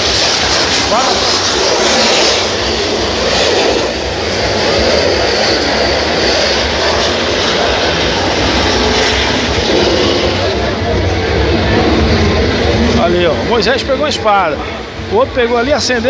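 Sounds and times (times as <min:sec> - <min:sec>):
fireworks hissing: 0:00.0 - 0:10.7.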